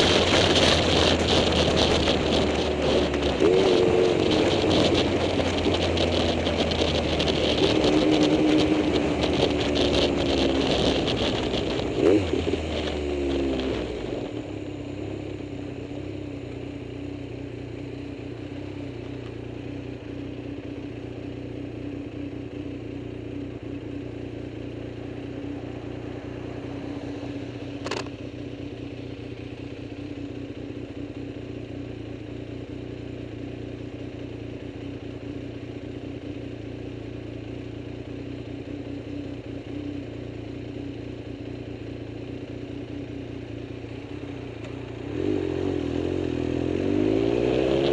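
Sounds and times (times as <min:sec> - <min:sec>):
vehicle engine idling: 0:13.9 - 0:46.8.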